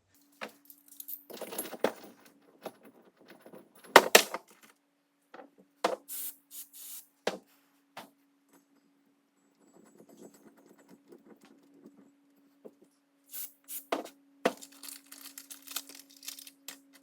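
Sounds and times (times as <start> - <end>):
metal parts clinking and scraping: 0.2 - 4.7, 14.5 - 17.0.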